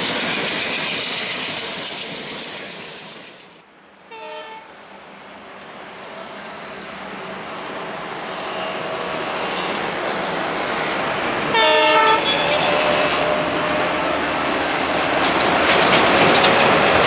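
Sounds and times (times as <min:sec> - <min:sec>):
diesel locomotive approaching: 0:00.0 - 0:17.0
train horn blast: 0:04.1 - 0:04.7, 0:08.2 - 0:10.0, 0:11.5 - 0:13.9.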